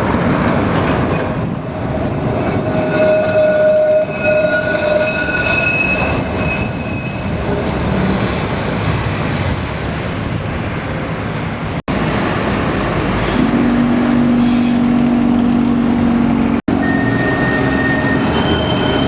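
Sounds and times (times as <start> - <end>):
rumble of wheels on track: 0.0 - 19.0
tram wheel squeal: 2.2 - 8.7, 11.9 - 19.0.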